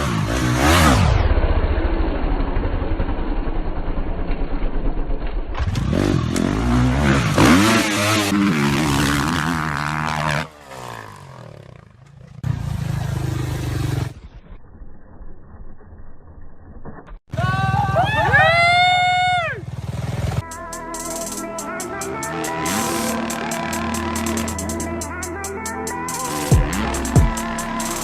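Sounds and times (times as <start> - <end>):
motocross bike engines revving: 0.0 - 1.2, 5.6 - 14.2, 17.4 - 20.4, 22.0 - 25.1, 26.2 - 28.0.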